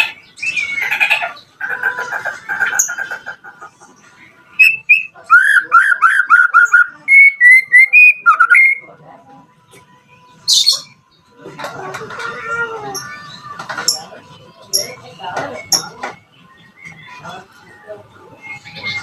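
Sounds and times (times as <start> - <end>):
songbird singing whistled notes: 0.0 - 1.3, 4.5 - 8.9, 14.7 - 19.0.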